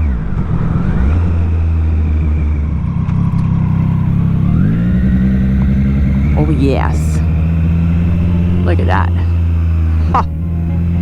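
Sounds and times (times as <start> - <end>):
motorcycle engine revving: 2.7 - 11.0.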